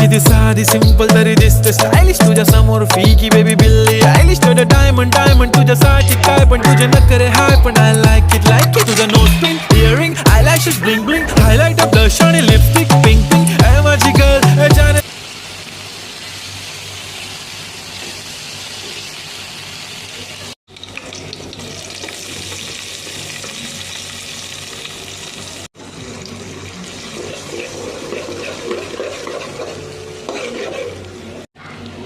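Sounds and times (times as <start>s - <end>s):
food sizzling in a pan: 15.0s - 31.4s.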